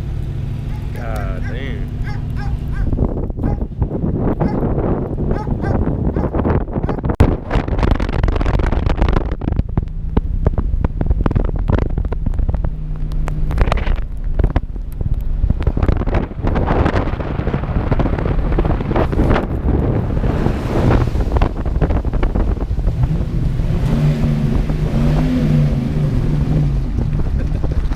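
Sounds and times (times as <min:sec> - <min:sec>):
knocks and crackles: 0:00.0 - 0:20.0, 0:26.1 - 0:27.9
wind buffeting microphone: 0:00.0 - 0:27.9.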